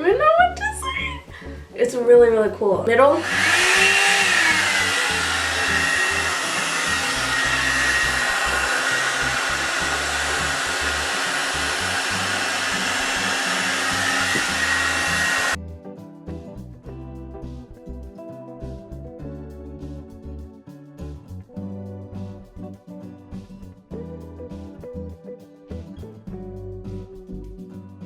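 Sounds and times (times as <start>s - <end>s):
quiet background music: 0.0s - 3.4s, 15.6s - 28.0s
blow-dryer running: 3.2s - 15.6s.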